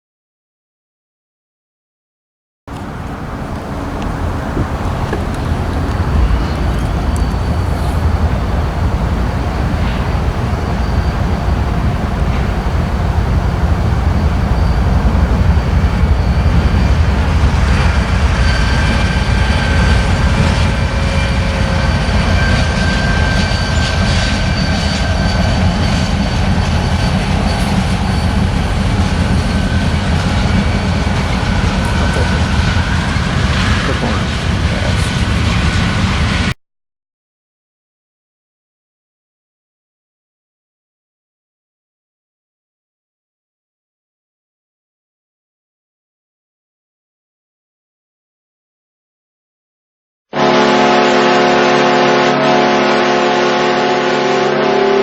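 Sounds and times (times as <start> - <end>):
train wheels rumbling on rails: 2.7 - 36.5.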